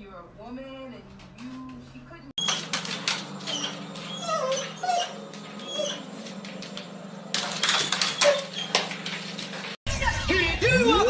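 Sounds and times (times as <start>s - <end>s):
pet whimpering squeaks: 2.4s - 6.8s, 7.6s - 9.1s.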